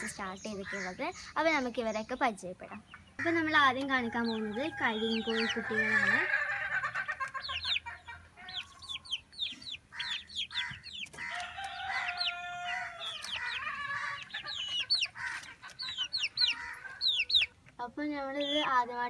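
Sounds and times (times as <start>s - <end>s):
chicks peeping: 0.0s - 19.0s
chicken calling: 2.7s - 17.6s.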